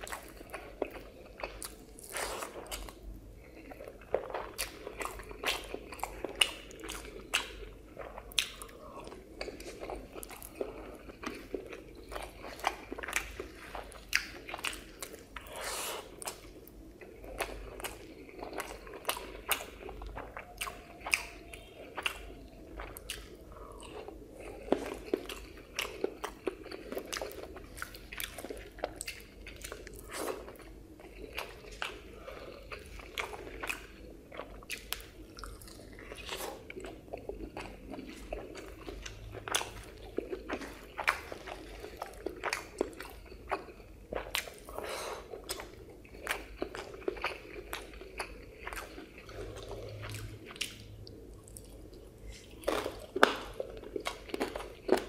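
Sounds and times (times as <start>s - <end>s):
person chewing with mouth sounds: 0.0s - 55.0s.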